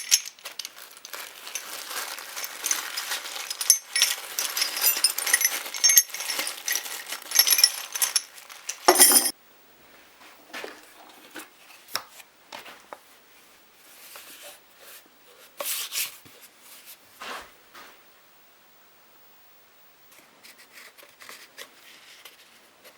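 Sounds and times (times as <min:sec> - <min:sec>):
small metal objects clinking: 0:00.0 - 0:09.3.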